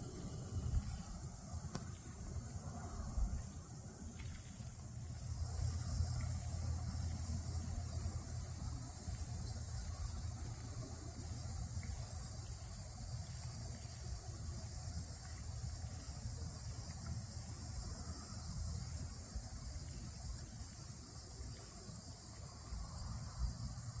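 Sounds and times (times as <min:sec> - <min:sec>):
continuous high hiss: 0:00.0 - 0:24.0.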